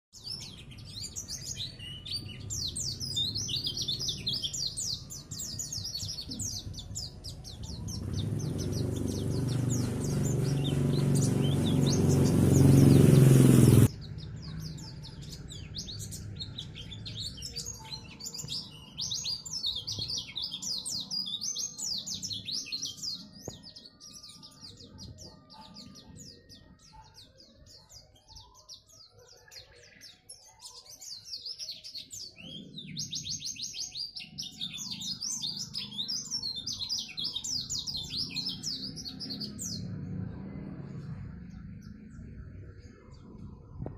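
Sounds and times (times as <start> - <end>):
bird twittering song: 0.1 - 43.9
low rumbling noise: 6.5 - 14.4, 39.6 - 43.9.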